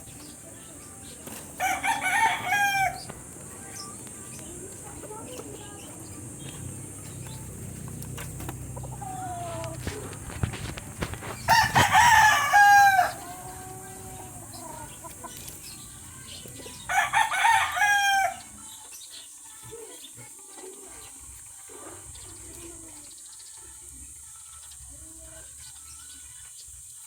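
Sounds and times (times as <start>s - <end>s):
rooster crowing: 1.6s - 3.1s, 11.4s - 14.8s, 16.8s - 18.5s.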